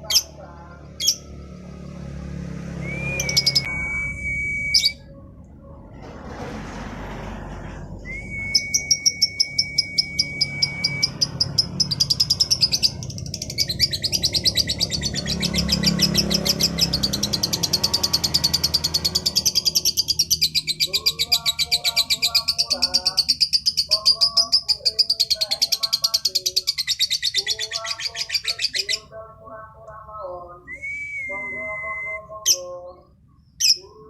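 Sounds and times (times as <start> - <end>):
lovebird whistling and chirping: 2.8 - 5.1, 8.0 - 29.0, 30.7 - 33.0.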